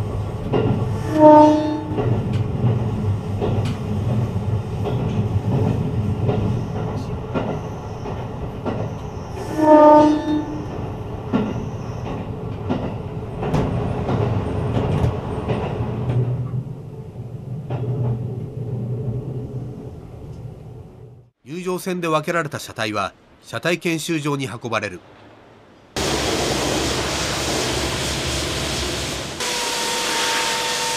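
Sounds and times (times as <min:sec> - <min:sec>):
wheels clicking over rail joints: 0:00.0 - 0:20.8
electric train rumbling: 0:00.0 - 0:21.4, 0:25.0 - 0:30.9
train horn blast: 0:00.9 - 0:02.2, 0:09.4 - 0:10.7, 0:29.4 - 0:30.9.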